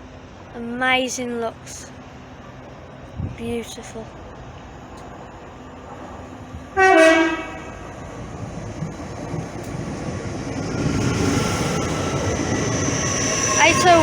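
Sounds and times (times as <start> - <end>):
train rumble: 0.0 - 14.0
train horn toot: 6.8 - 7.9.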